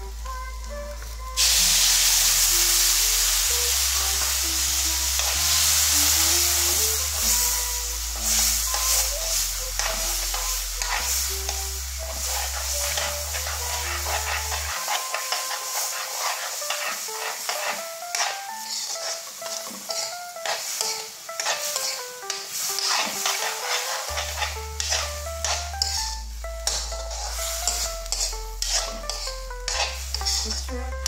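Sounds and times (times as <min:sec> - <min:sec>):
background music with bass: 0:00.0 - 0:14.8, 0:23.2 - 0:31.0
food sizzling in a pan: 0:00.0 - 0:31.0
spatula stirring and scraping: 0:04.1 - 0:31.0.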